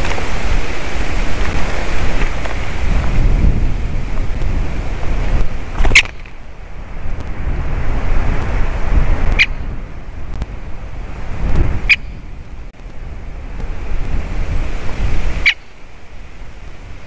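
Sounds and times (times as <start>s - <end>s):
wind buffeting microphone: 0.0s - 17.0s
short sharp bird calls: 9.4s - 9.6s, 11.9s - 12.2s.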